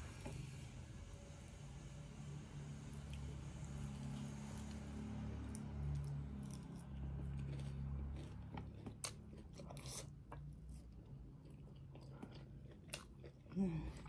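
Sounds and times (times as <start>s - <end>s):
low steady hum: 0.0s - 14.0s
chewing with wet mouth clicks: 5.9s - 14.0s.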